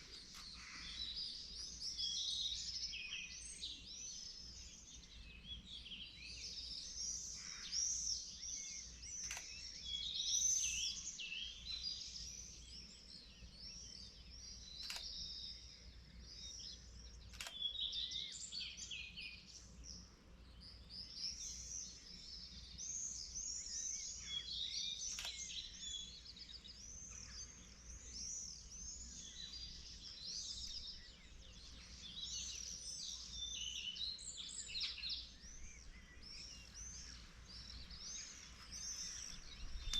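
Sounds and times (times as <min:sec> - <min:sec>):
songbirds singing: 0:00.0 - 0:39.9
faint sharp clicks: 0:00.1 - 0:01.0, 0:09.1 - 0:09.9, 0:14.7 - 0:15.5, 0:17.1 - 0:17.8, 0:25.0 - 0:25.7, 0:37.5 - 0:39.9.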